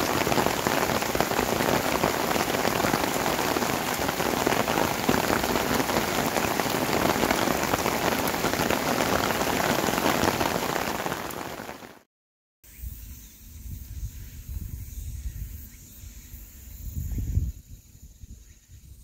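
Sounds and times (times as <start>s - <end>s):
heavy rain on corrugated roof: 0.0s - 12.1s.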